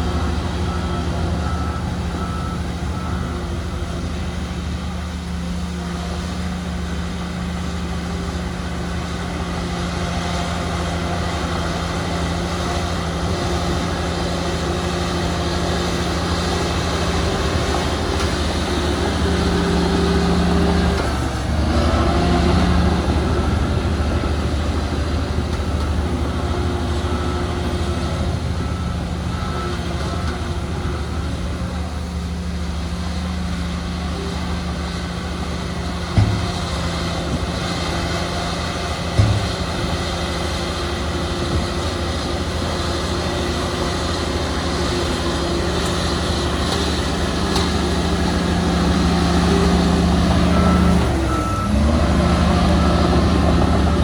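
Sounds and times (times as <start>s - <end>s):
reversing alarm beeping: 0.0s - 5.3s, 21.9s - 31.8s, 38.0s - 54.0s
heavy diesel machinery running: 0.0s - 54.0s.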